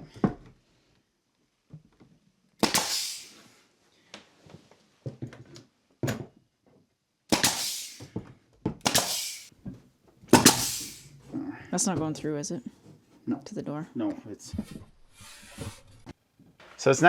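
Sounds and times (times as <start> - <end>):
nail gun firing into wood: 2.6 - 3.4, 7.3 - 8.1, 8.8 - 9.5, 10.3 - 11.1
short hiss: 2.6 - 3.5, 7.3 - 8.1, 8.9 - 9.5, 10.4 - 11.2.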